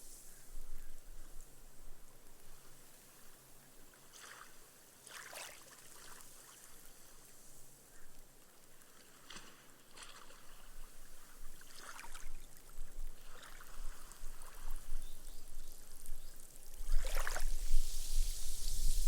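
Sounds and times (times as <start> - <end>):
foam hissing into sand: 0.0 - 0.5, 16.9 - 19.0
small waves lapping on sand: 2.3 - 14.9, 16.8 - 19.0.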